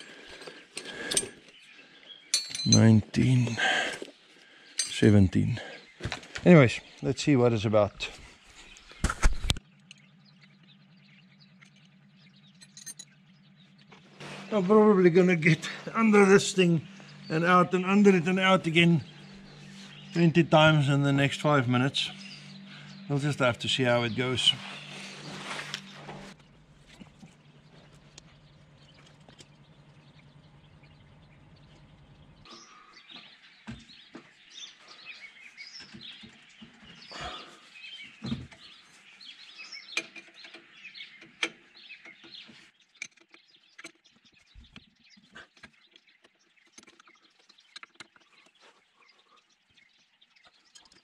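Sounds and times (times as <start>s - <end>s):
birds chirping: 0.0s - 51.0s
low steady hum: 9.5s - 32.9s.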